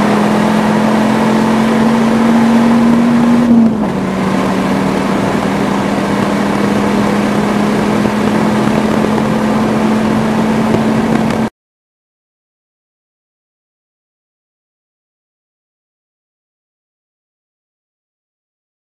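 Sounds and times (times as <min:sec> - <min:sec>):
car engine pulling hard: 0:00.0 - 0:11.5
gear change: 0:00.0 - 0:11.5.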